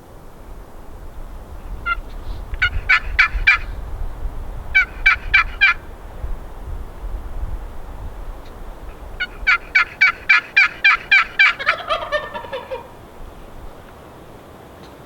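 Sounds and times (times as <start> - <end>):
turkey yelping: 1.7 - 3.8, 4.7 - 6.2, 8.4 - 13.4.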